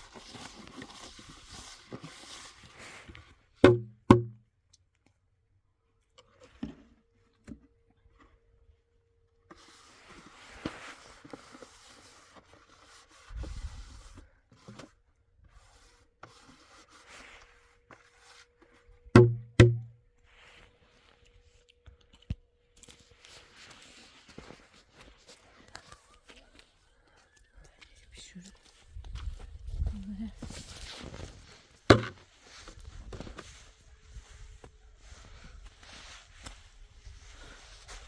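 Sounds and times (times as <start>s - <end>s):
handling and rustling noises: 0.0s - 3.6s, 6.0s - 19.1s, 20.1s - 38.0s
loud resonant knocks: 19.2s - 19.9s.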